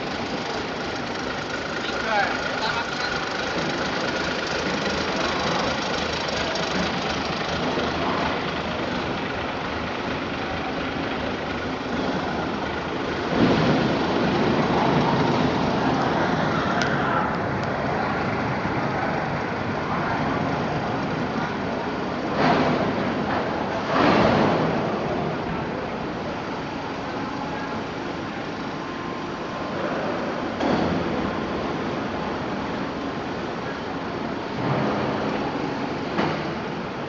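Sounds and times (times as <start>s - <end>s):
engine running: 0.0s - 37.0s
industrial machinery noise: 0.0s - 37.0s.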